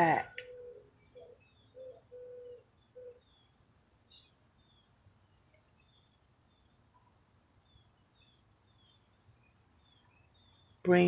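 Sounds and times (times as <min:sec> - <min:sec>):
small birds chirping: 0:00.0 - 0:11.0
dove cooing: 0:00.4 - 0:03.3.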